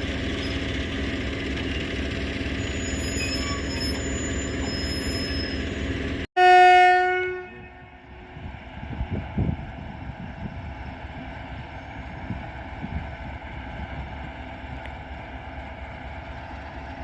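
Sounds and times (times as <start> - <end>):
freight train rumbling: 0.0 - 17.0
locomotive horn blast: 6.4 - 8.4.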